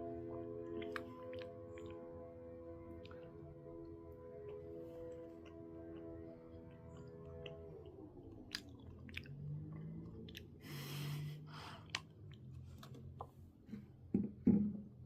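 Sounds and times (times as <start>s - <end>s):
person chewing food: 8.3s - 10.8s.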